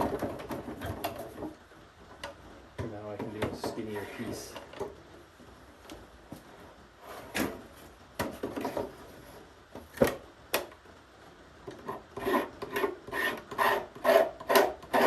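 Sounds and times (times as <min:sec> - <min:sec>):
blade shaving wood: 0:11.8 - 0:15.0.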